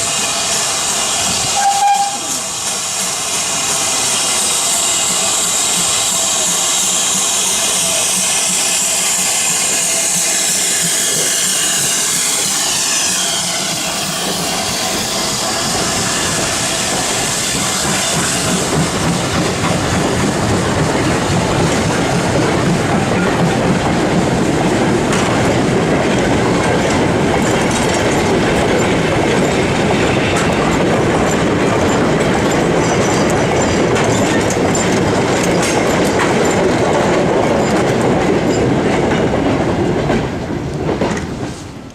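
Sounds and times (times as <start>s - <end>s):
steam hiss: 0.0s - 20.4s
train wheels clattering over rail joints: 0.4s - 41.9s.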